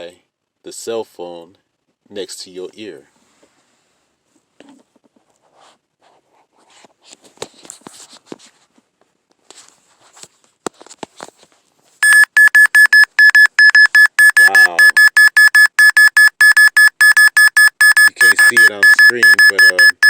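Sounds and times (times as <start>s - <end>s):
meter alarm beeping: 12.0s - 20.0s.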